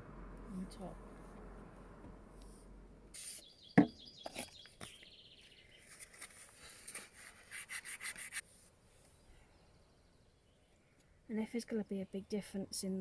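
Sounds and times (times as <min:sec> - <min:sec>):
small birds chirping: 0:03.2 - 0:06.3
sharp knock: 0:03.8 - 0:04.0.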